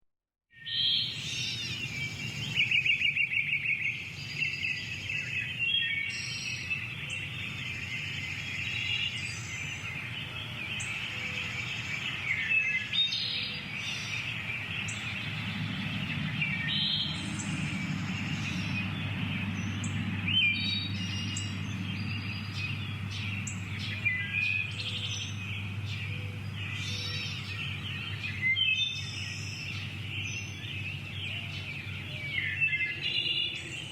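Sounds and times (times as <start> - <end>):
bird trill: 0.6 - 33.9
birds singing and chirping: 0.6 - 33.9
low background rumble: 13.6 - 32.0.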